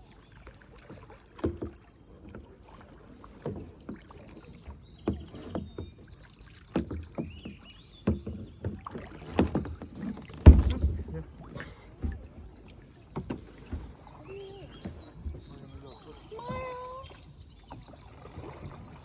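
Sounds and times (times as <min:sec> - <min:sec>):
kayak paddles splashing in water: 0:00.0 - 0:19.0.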